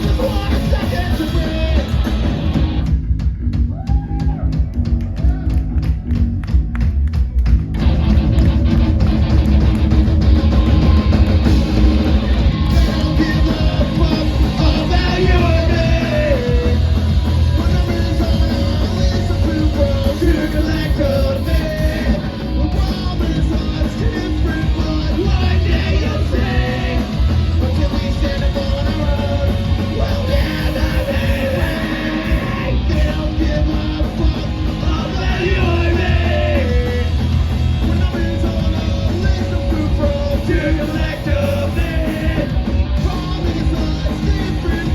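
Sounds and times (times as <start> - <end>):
punk rock band playing live: 0.0 - 44.9
person shouting singing: 12.7 - 44.9.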